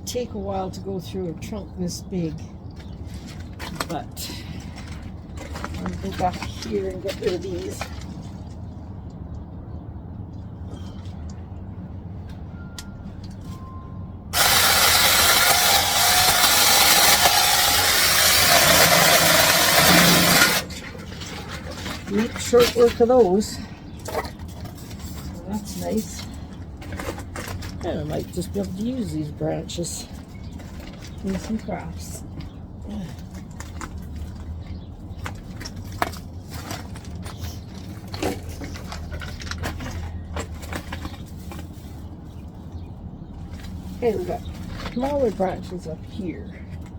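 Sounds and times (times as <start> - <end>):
chainsaw cutting branches: 14.4 - 20.9.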